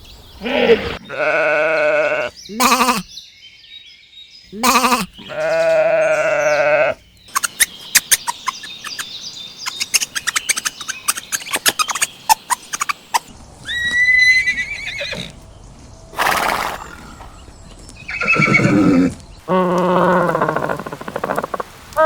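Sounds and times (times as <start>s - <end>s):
horse whinnying: 13.6s - 15.4s, 18.1s - 21.4s.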